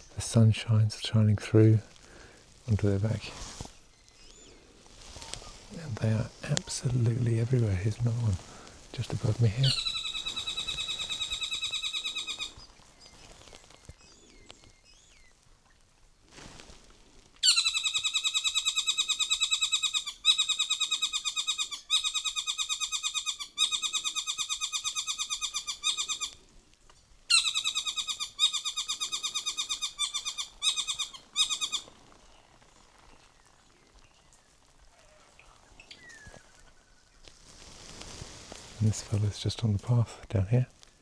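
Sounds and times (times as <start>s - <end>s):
bird chattering calls: 9.3s - 12.7s, 27.3s - 32.0s.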